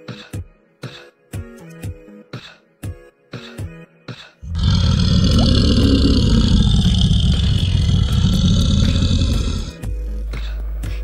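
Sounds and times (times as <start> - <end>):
large animal roaring: 4.4 - 9.8.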